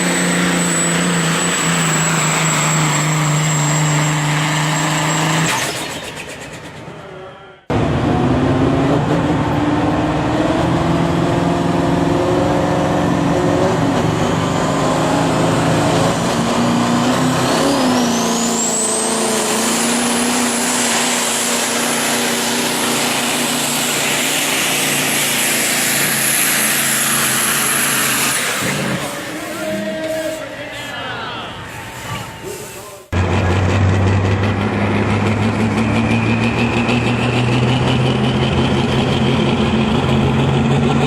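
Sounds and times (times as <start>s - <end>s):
truck diesel engine under load: 0.0s - 30.9s, 32.2s - 41.0s.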